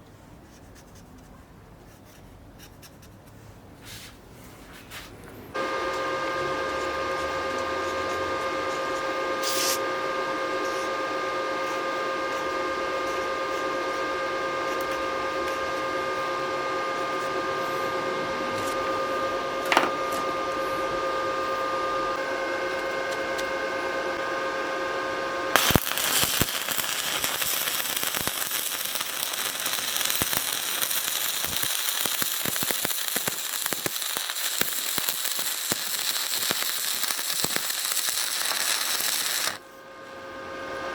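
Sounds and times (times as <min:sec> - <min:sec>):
electrical whine over hiss: 0:05.6 - 0:24.4, 0:25.3 - 0:39.6
welding arc crackling: 0:25.5 - 0:39.6.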